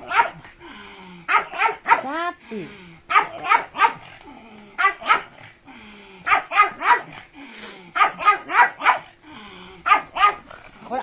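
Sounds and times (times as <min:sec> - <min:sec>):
dog barking: 0:00.0 - 0:00.4, 0:01.3 - 0:02.1, 0:03.1 - 0:04.1, 0:04.8 - 0:05.4, 0:06.3 - 0:07.2, 0:08.0 - 0:09.1, 0:09.8 - 0:10.4.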